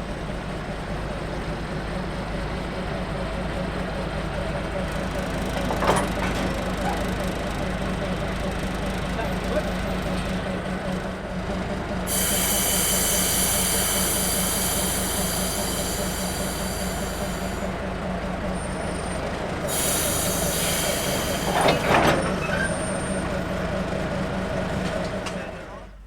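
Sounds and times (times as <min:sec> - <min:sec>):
diesel locomotive running: 0:00.0 - 0:26.0
air brake hissing: 0:12.0 - 0:17.8, 0:19.6 - 0:23.3
brief squeal: 0:19.8 - 0:23.3.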